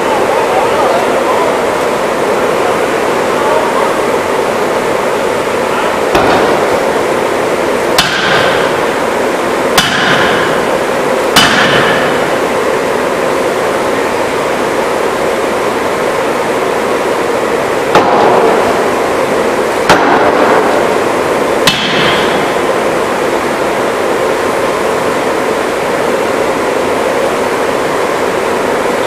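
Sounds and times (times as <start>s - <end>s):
loud steady noise: 0.0s - 29.0s
forging hammer banging: 6.1s - 6.9s, 8.0s - 9.1s, 9.7s - 12.4s, 17.9s - 18.8s, 19.8s - 20.8s, 21.6s - 22.6s.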